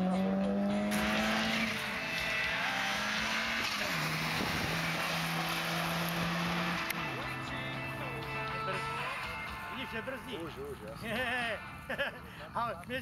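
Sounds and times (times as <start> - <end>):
car engine running: 0.0 - 10.1.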